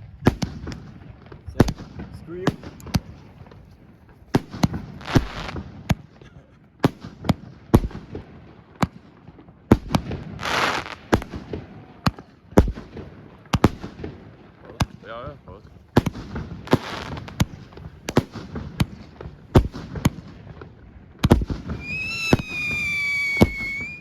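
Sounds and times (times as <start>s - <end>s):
fireworks and firecrackers banging: 0.0s - 15.1s, 15.8s - 24.0s
firework hissing rush: 21.8s - 24.0s.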